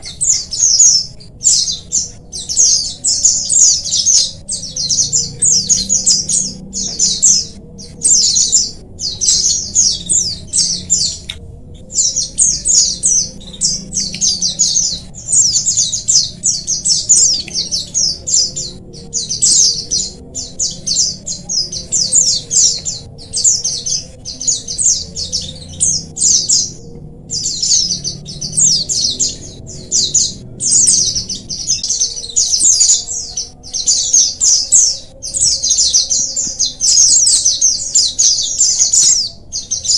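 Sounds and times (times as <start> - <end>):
flock of birds twittering: 0.0 - 39.9.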